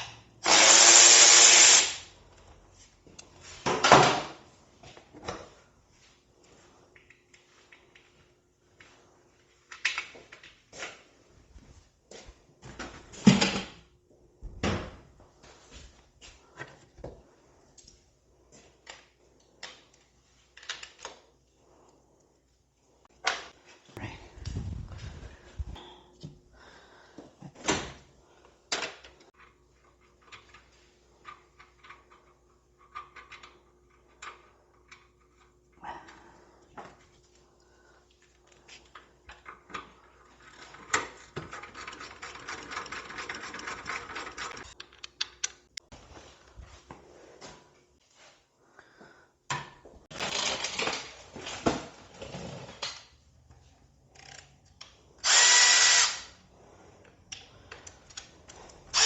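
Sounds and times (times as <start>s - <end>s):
tools and parts clicking: 38.3s - 45.8s, 54.1s - 56.3s.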